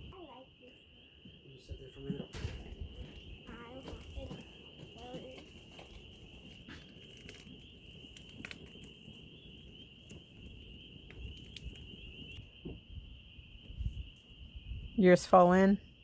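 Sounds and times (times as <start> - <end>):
frogs trilling: 0.0 - 16.0
wood fire crackling: 0.0 - 16.0.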